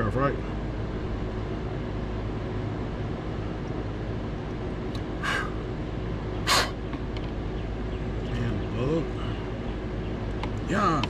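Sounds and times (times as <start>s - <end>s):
steady low hum: 0.0s - 11.0s
person exhaling sharply: 6.5s - 6.8s.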